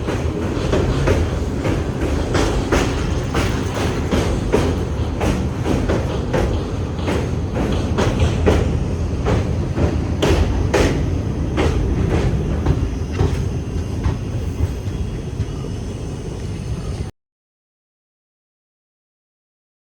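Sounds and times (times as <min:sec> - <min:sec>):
wheels clicking over rail joints: 0:00.0 - 0:15.7
train wheels rumbling on rails: 0:00.0 - 0:17.1.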